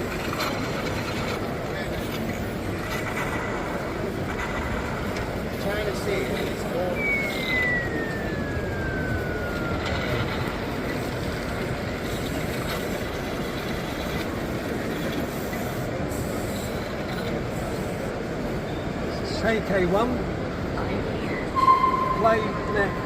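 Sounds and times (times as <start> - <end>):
busy hall background noise: 0.0 - 23.0
high tone gliding downward: 6.3 - 11.8, 21.4 - 23.0
faint steady tone: 21.4 - 23.0.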